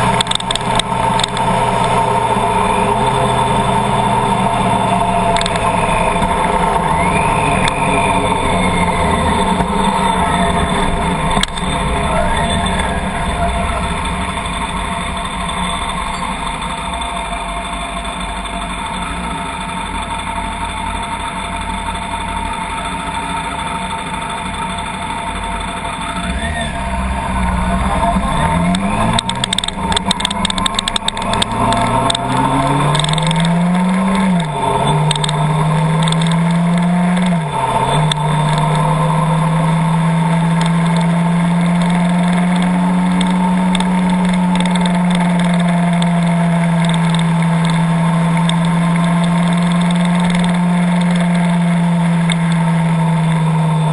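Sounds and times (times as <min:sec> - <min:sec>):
clicks during gear changes: 0:00.0 - 0:02.1, 0:04.9 - 0:16.6, 0:27.4 - 0:53.9
car engine revving: 0:00.0 - 0:53.9.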